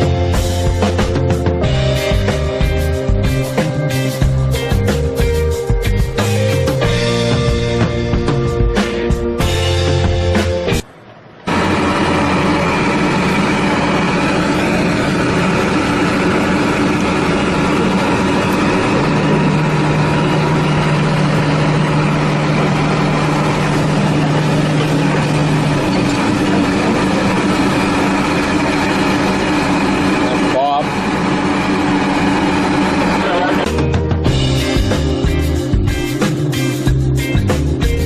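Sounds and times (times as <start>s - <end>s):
engine running: 0.0s - 38.0s
steady hum: 10.8s - 36.4s.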